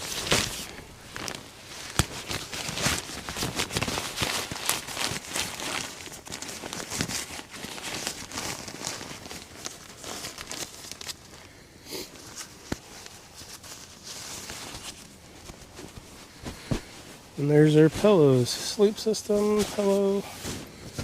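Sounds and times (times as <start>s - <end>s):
fabric rustling and crinkling: 0.0s - 21.0s.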